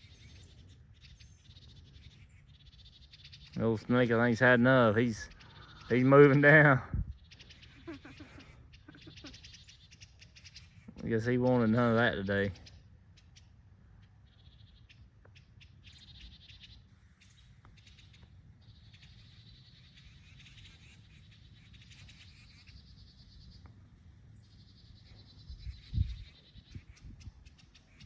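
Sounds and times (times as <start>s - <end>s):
small birds chattering alarm calls: 0.0s - 28.0s.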